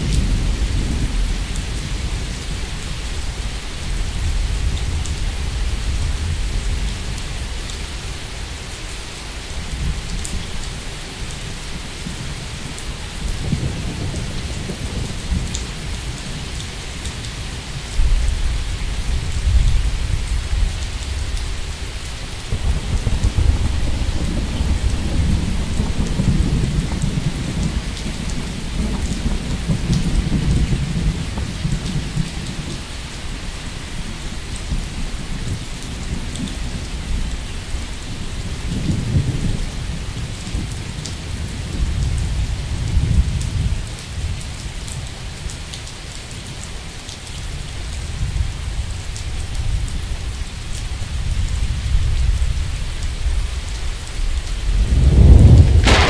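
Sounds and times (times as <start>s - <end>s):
steady rain falling: 0.0s - 56.0s
rolling thunder: 22.5s - 32.8s, 54.6s - 56.0s.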